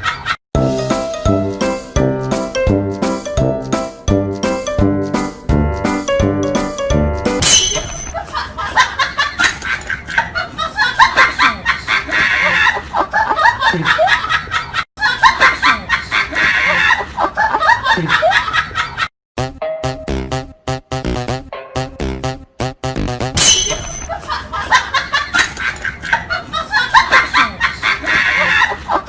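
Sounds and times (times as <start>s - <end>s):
music: 0.6s - 7.4s, 19.4s - 23.4s
music with an even beat: 0.6s - 7.4s, 19.4s - 23.4s
high snickering laughter: 8.2s - 19.1s, 24.1s - 29.0s.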